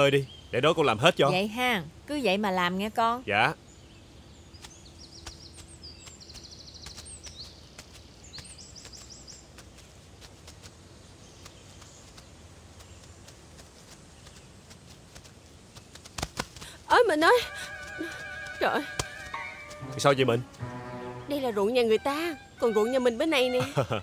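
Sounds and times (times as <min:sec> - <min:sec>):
bird chirping: 0:00.0 - 0:01.5, 0:03.2 - 0:09.9, 0:16.9 - 0:24.0
bare feet stepping through grass: 0:04.5 - 0:24.0.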